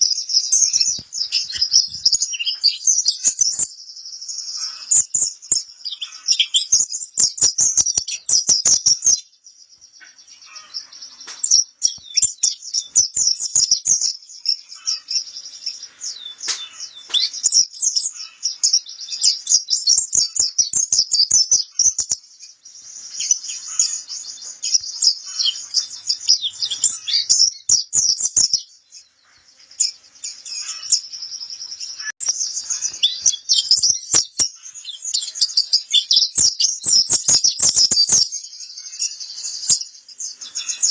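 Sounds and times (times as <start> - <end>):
white-eye bird twittering song: 0.0 - 40.9.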